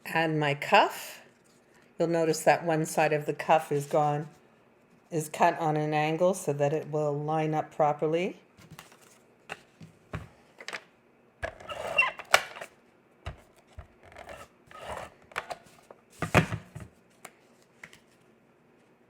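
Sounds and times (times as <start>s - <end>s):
cardstock rustling and scraping: 3.6s - 4.4s, 8.6s - 9.9s, 13.3s - 18.2s.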